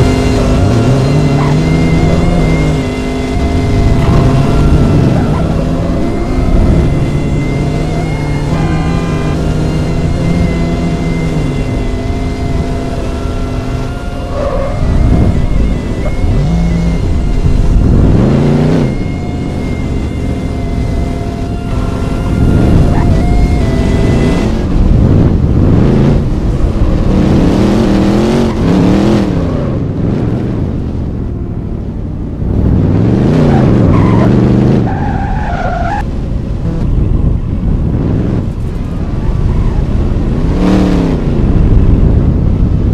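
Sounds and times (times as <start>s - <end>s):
high steady squeal: 0.0s - 24.8s
car engine running and revving: 0.0s - 42.9s.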